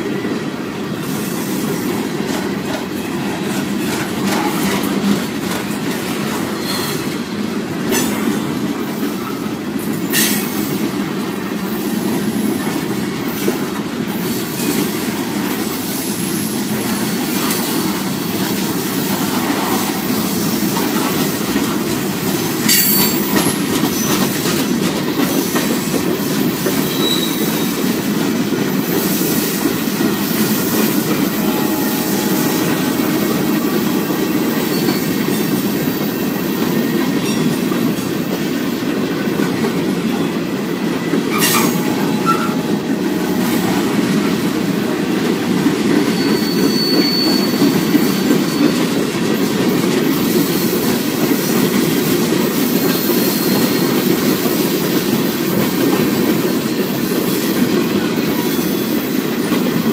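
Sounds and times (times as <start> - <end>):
train wheels rumbling on rails: 0.0 - 59.9
high wheel squeals: 26.8 - 27.9, 30.2 - 37.5, 45.9 - 49.0, 52.9 - 54.1.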